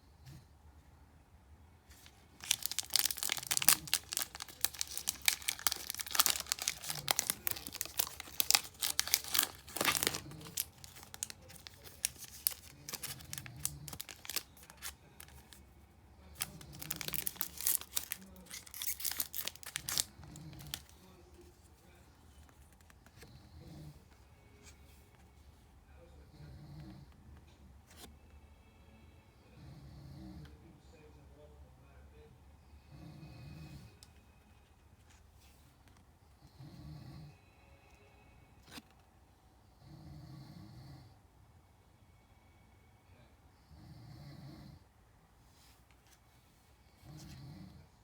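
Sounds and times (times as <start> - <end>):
foil wrapper crinkling: 2.0 - 15.6, 16.4 - 20.9.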